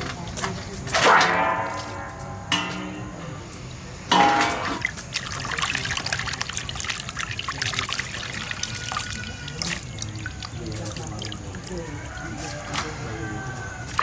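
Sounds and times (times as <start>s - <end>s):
small splashes: 4.1s - 14.0s
water trickling and pouring: 4.5s - 14.0s.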